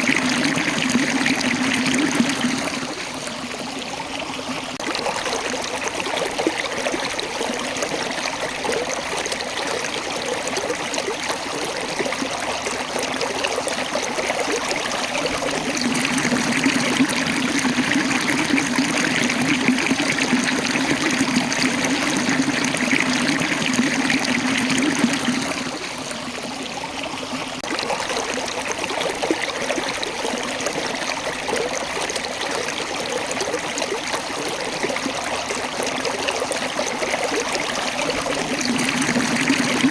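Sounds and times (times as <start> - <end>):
water rushing over rocks: 14.2 - 26.4, 36.5 - 39.9.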